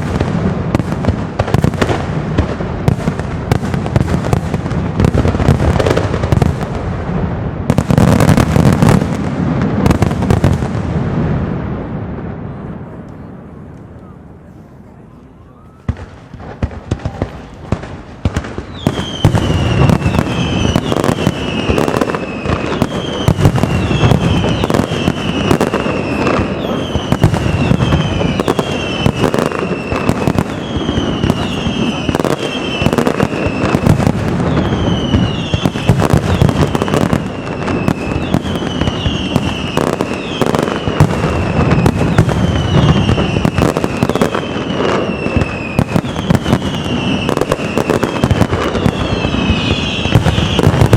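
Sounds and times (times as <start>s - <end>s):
fireworks barrage: 0.0s - 50.9s
whistling fireworks falling in pitch: 0.0s - 50.9s.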